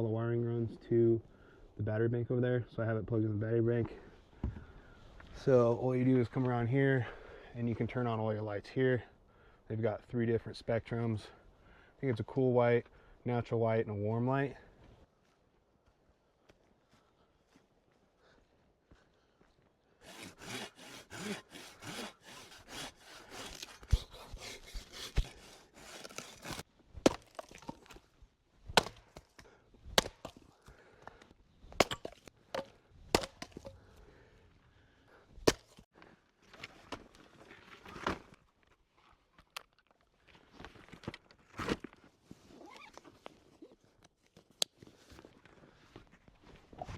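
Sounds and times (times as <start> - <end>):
wood being sawn: 20.0 - 26.6
wood breaking cracks: 26.0 - 28.0.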